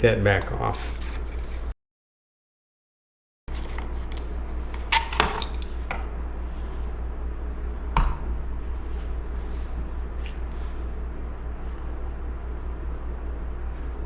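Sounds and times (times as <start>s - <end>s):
steady low hum: 3.5s - 14.0s.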